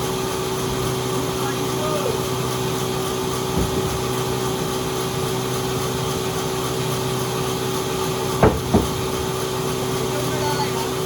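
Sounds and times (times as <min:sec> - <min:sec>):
sawmill machinery motor hum: 0:00.0 - 0:11.0
short knock: 0:03.6 - 0:04.2, 0:08.4 - 0:09.4.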